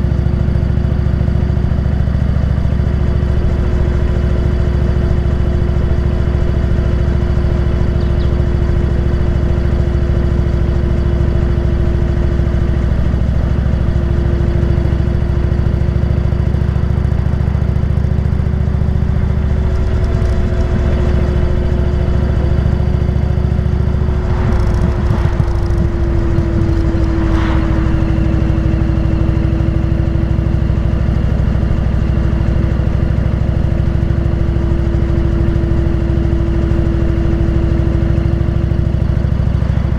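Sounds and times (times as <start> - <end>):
motorcycle engine running: 0.0 - 38.2
rushing noise: 20.0 - 30.5.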